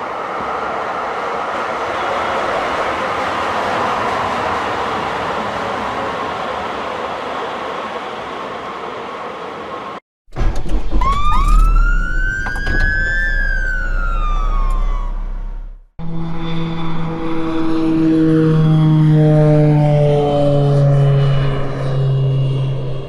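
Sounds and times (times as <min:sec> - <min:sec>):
steady rushing noise: 0:00.0 - 0:10.0
low engine rumble: 0:10.8 - 0:23.0
siren wailing: 0:10.9 - 0:23.0
steady engine drone: 0:12.2 - 0:23.0.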